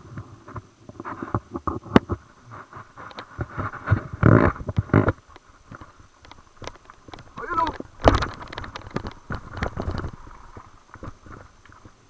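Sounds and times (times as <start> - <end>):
tyre noise on dirt: 2.1 - 12.0
mountain bike rattling: 4.2 - 12.0.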